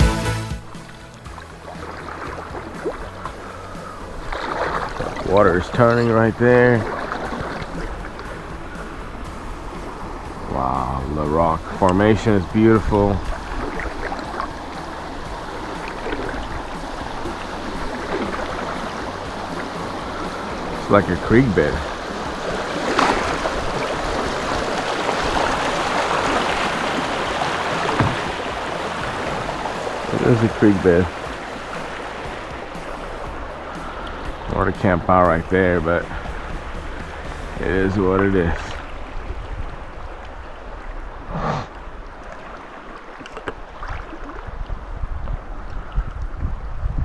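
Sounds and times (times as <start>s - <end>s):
creek water over rocks: 0.0s - 47.0s
faint knocks: 25.1s - 32.6s.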